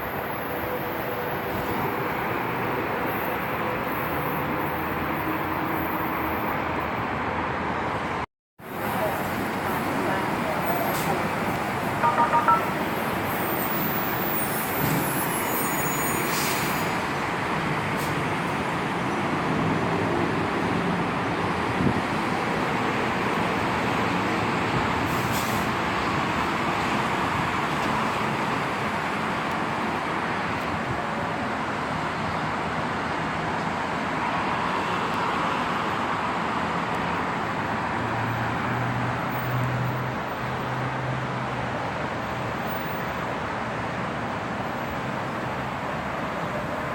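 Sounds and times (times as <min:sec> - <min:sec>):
road traffic noise: 0:00.0 - 0:46.9
high faint tones: 0:12.0 - 0:12.9.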